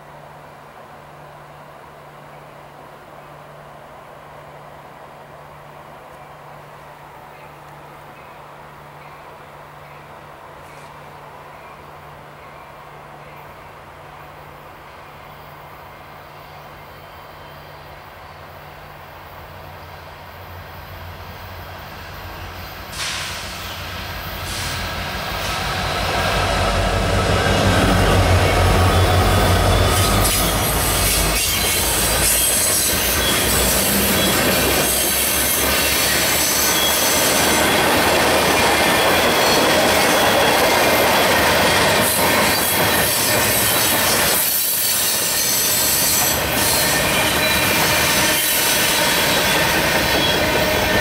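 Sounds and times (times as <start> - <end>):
diesel locomotive engine rumble: 0.0 - 51.0
train wheels squealing: 16.3 - 18.5, 20.6 - 51.0.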